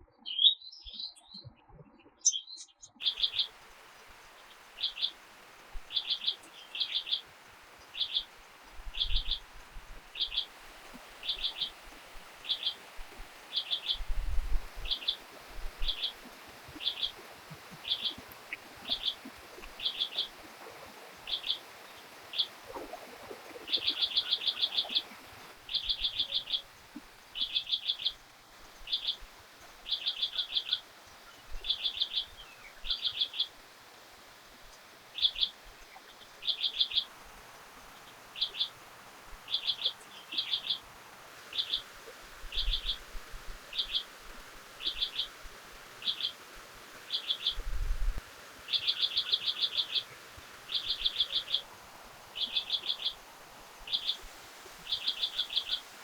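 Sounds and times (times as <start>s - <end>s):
bird chirping: 0.0s - 3.6s, 38.4s - 38.7s, 39.5s - 40.8s, 48.7s - 51.7s, 52.4s - 53.2s, 53.9s - 54.3s, 54.9s - 55.8s.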